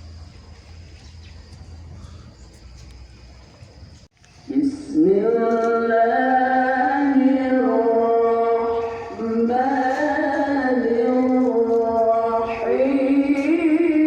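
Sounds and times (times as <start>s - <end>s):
person chanting over loudspeaker: 4.5s - 14.0s.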